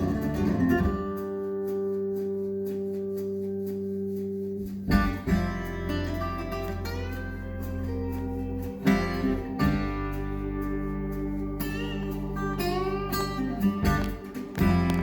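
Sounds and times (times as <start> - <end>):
guitar music over loudspeakers: 0.0 - 15.0.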